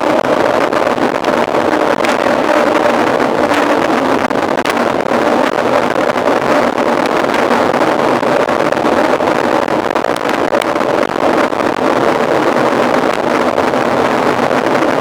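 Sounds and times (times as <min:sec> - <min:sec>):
mountain bike riding noise: 0:00.0 - 0:09.8
wind rushing: 0:00.0 - 0:15.0.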